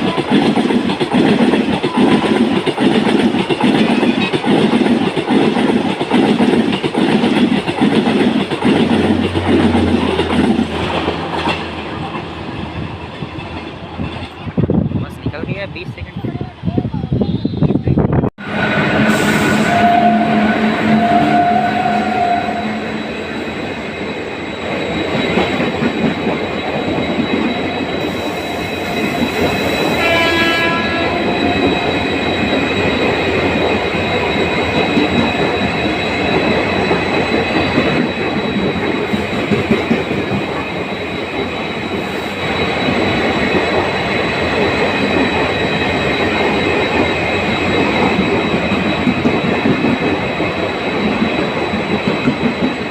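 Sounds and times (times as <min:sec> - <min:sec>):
train rumbling past: 0:00.0 - 0:52.9
train horn: 0:18.4 - 0:23.2, 0:29.9 - 0:31.8.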